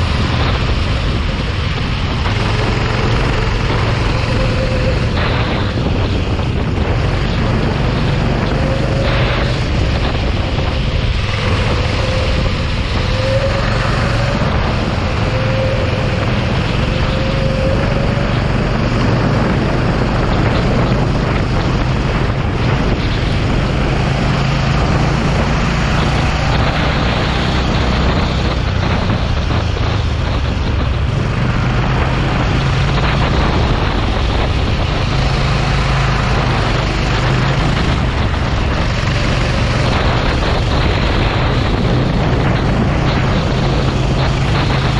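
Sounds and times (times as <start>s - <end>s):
kart engine running: 0.0s - 44.9s
wind noise on microphone: 0.0s - 44.9s.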